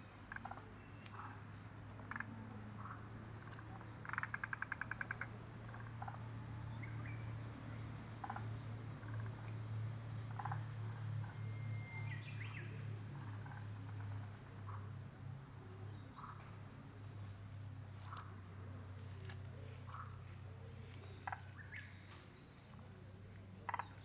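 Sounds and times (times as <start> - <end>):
wild birds calling: 19.2 - 24.0.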